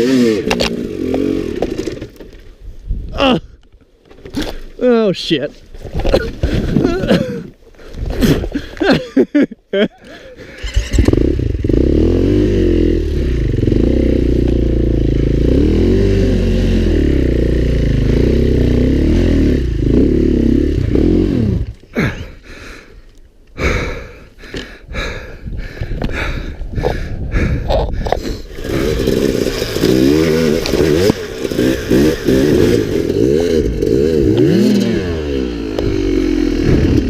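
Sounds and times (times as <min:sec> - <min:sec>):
dirt bike engine revving: 0:00.0 - 0:02.1, 0:10.4 - 0:21.8, 0:28.2 - 0:37.0.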